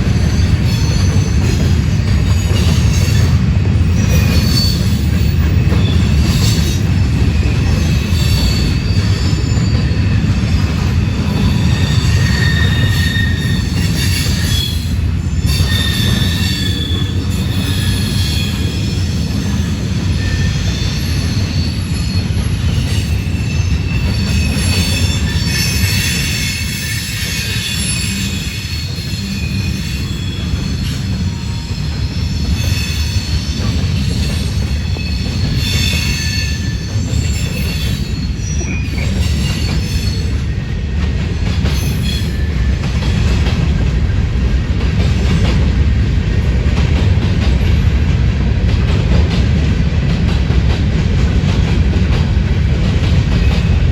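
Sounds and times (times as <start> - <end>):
rumble of wheels on rail: 0.0 - 53.9
high wheel squeal: 0.2 - 40.4.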